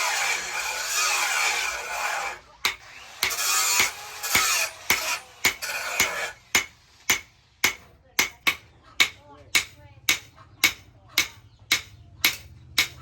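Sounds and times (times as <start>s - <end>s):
hammer striking steel on anvil: 0.1s - 13.0s.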